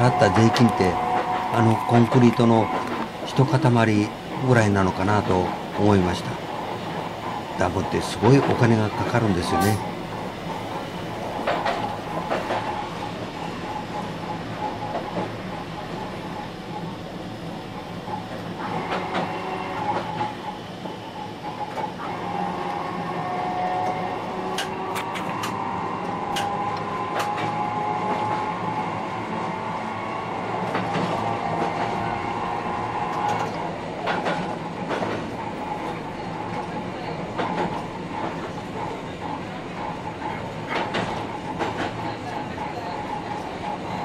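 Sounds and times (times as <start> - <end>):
electric train hum and whine: 0.0 - 44.0
wheels clicking over rail joints: 9.5 - 12.8, 24.5 - 28.5, 33.1 - 43.6.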